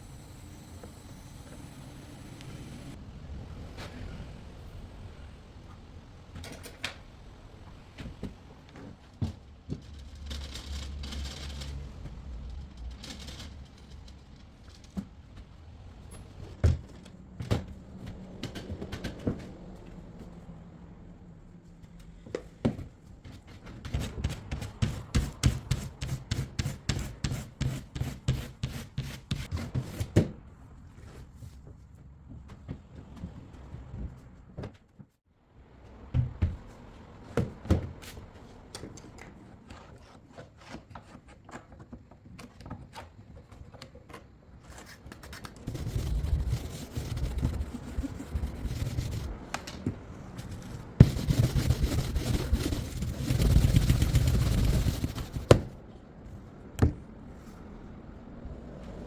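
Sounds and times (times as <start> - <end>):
knocks and rubbing of hand work: 22.4 - 30.4, 45.5 - 55.8.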